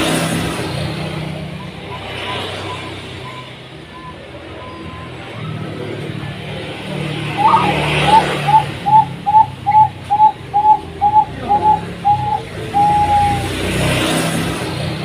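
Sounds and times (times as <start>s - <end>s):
dove cooing: 7.1s - 13.6s.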